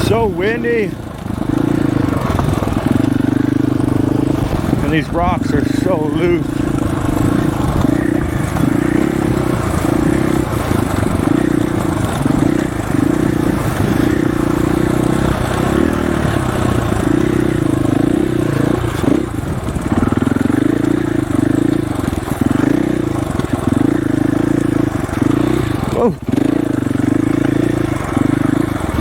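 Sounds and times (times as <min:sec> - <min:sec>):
dirt bike engine: 0:00.0 - 0:29.0
wind noise: 0:04.0 - 0:05.6.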